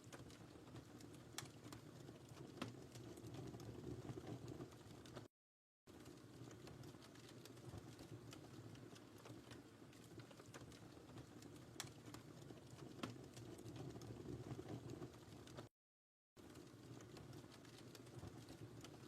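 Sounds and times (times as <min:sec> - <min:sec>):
wood fire crackling: 0:00.0 - 0:05.3, 0:05.9 - 0:15.7, 0:16.4 - 0:19.0.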